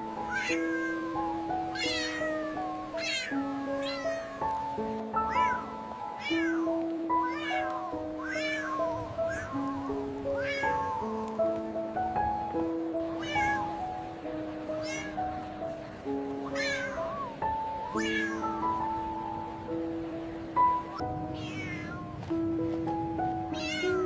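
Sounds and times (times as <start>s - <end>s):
held keyboard notes music: 0.0s - 24.0s
cat meowing: 0.1s - 11.1s, 13.0s - 13.8s, 14.7s - 15.4s, 16.4s - 19.0s, 20.9s - 22.2s, 23.5s - 24.0s.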